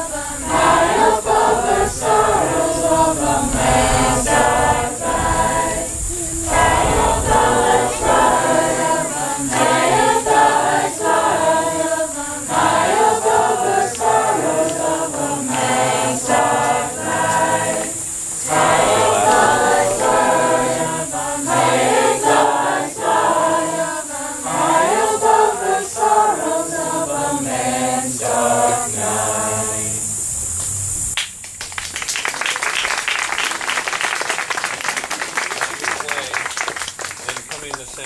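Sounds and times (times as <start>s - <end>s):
group singing a round: 0.0s - 30.3s
applause: 31.2s - 38.0s.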